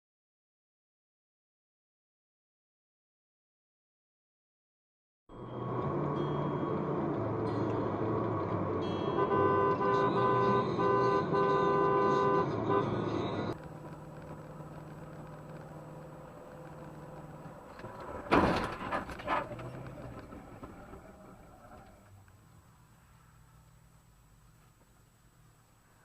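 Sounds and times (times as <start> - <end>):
road traffic: 5.3 - 26.0
steady engine hum: 5.3 - 26.0
car horn honking: 8.9 - 13.6.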